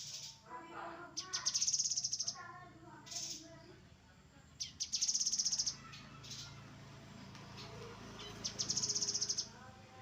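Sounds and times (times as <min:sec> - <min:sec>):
bird singing high trills: 0:01.2 - 0:02.4, 0:04.6 - 0:06.5, 0:07.6 - 0:09.6.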